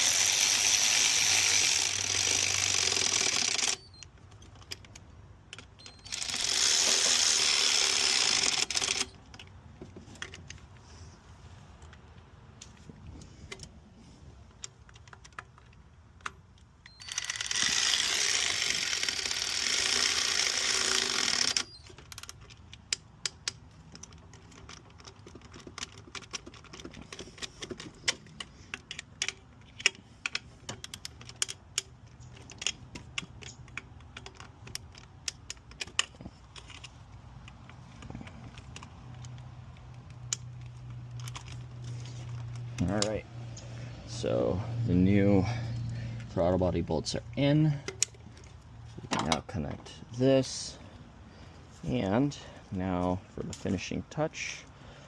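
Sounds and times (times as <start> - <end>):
power tool driving bolts: 0.0 - 4.1, 5.6 - 9.2, 16.9 - 23.6.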